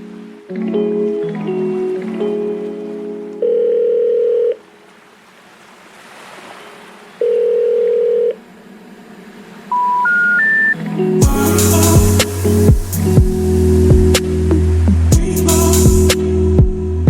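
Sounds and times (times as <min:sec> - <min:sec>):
telephone ringback beeps: 0:03.4 - 0:04.6, 0:07.2 - 0:08.4, 0:09.7 - 0:10.8
rising three-note tone: 0:09.7 - 0:15.2.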